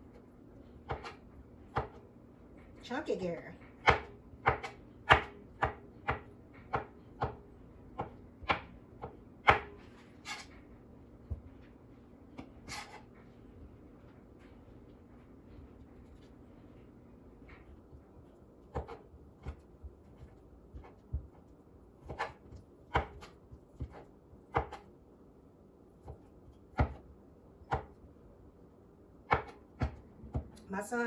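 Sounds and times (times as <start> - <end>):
knife chopping on cutting board: 0.8 - 2.0, 3.8 - 7.4, 8.0 - 10.5, 18.7 - 24.9, 26.0 - 27.0, 27.7 - 28.0, 29.3 - 30.6.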